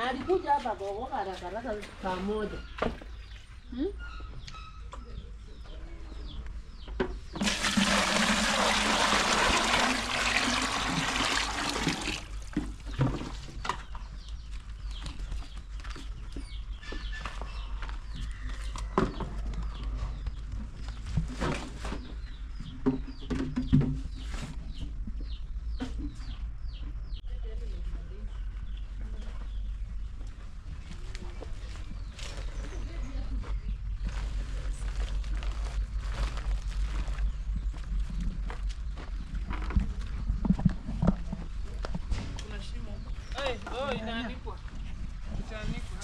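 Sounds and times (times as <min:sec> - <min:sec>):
small birds calling: 0:00.0 - 0:07.4, 0:11.9 - 0:46.0
water pouring or splashing: 0:07.4 - 0:12.5.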